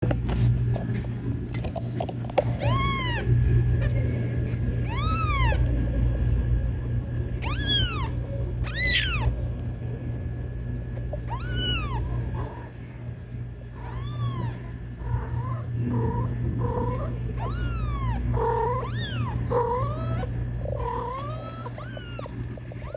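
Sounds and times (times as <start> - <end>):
kitten meowing: 2.6 - 3.3, 4.8 - 5.6, 7.4 - 9.3, 11.3 - 12.1, 13.8 - 14.6, 15.3 - 22.9.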